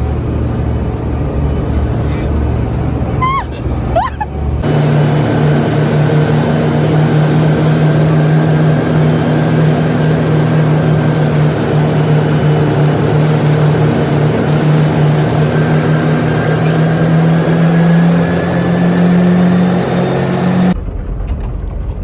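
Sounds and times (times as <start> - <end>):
hiss of wind and water: 0.0 - 20.8
boat engine running: 0.0 - 21.8.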